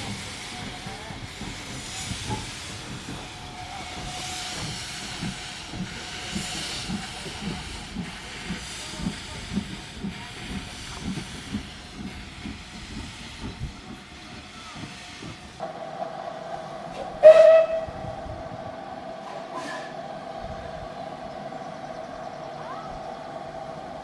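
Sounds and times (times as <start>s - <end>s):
steam hissing: 0.0s - 24.0s
steam locomotive exhaust beats: 0.0s - 24.0s
steam whistle blast: 17.2s - 18.0s.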